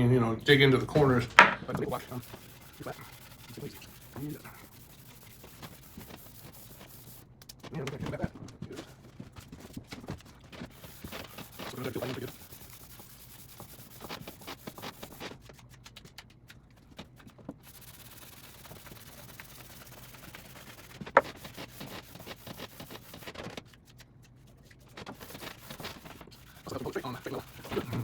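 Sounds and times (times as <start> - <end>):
sanding block rubbing a surface: 1.8 - 7.3, 10.6 - 15.4, 17.6 - 23.4, 24.9 - 28.0.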